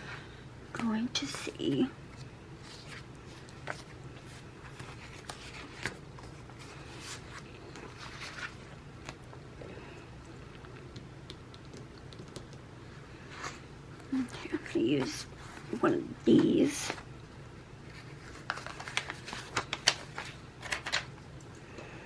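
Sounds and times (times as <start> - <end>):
low room hum: 0.0 - 22.0
paper rustling: 2.1 - 9.2, 17.8 - 21.1.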